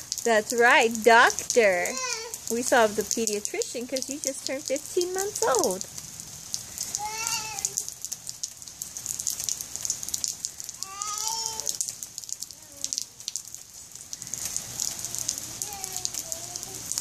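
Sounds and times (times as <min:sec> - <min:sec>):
rain pattering and dripping: 0:00.0 - 0:17.0
toddler high-pitched vocal sounds: 0:01.8 - 0:02.5, 0:06.9 - 0:07.9, 0:10.8 - 0:11.9, 0:12.5 - 0:13.2, 0:14.8 - 0:17.0.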